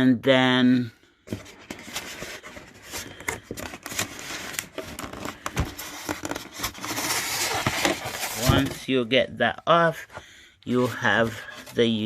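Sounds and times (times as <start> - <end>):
packaging rustling and crinkling: 1.3 - 8.9.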